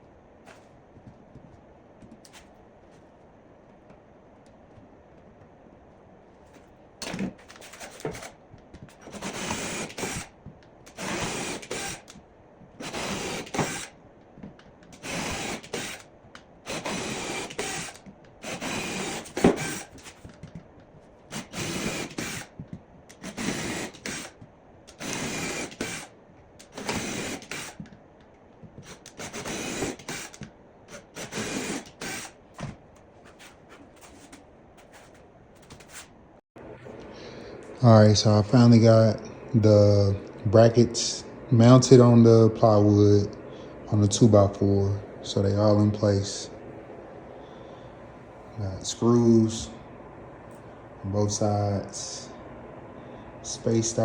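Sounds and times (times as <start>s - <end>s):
power drill driving screws into wood: 9.0s - 10.3s, 10.9s - 12.1s, 12.8s - 13.9s, 15.0s - 16.1s, 16.7s - 20.2s, 21.3s - 22.5s, 23.2s - 27.8s, 28.8s - 32.4s.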